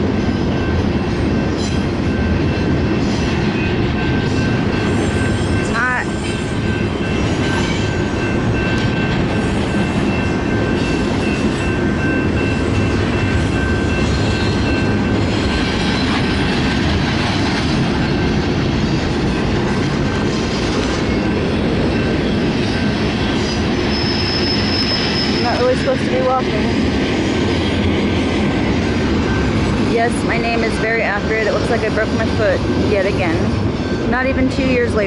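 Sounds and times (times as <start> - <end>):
train wheel-and-rail noise: 0.0 - 35.0
high wheel squeal: 22.7 - 26.0.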